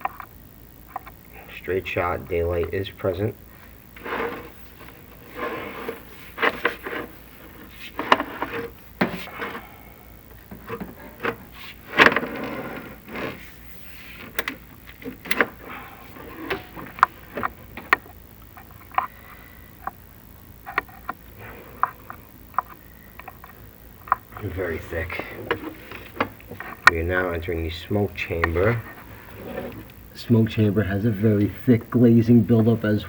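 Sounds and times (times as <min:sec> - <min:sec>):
push rods scraping flue walls: 0:04.0 - 0:09.8, 0:10.4 - 0:18.1, 0:24.4 - 0:27.6, 0:28.3 - 0:29.9.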